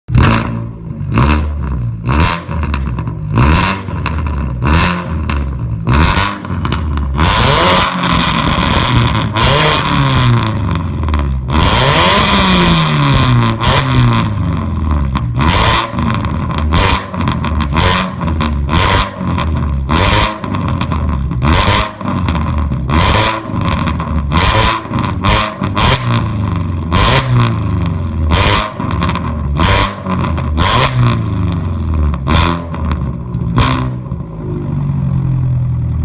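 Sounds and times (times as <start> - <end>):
car engine revving: 0.1 - 36.0
car engine idling: 32.8 - 36.0.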